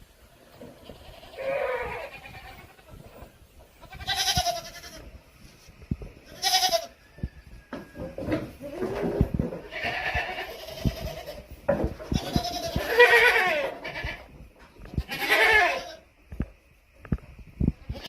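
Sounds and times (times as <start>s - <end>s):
goats bleating: 0.5s - 3.1s, 3.7s - 5.1s, 6.3s - 7.0s, 9.6s - 14.3s, 14.9s - 16.0s
low thumps and knocks: 7.2s - 13.1s.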